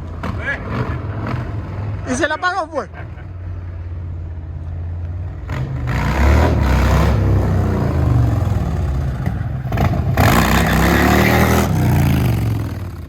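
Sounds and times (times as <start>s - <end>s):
motorcycle engine revving: 5.3s - 13.0s.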